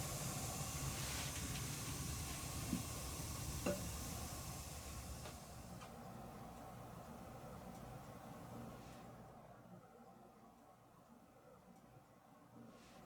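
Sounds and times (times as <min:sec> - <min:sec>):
recording hiss: 0:00.0 - 0:10.0.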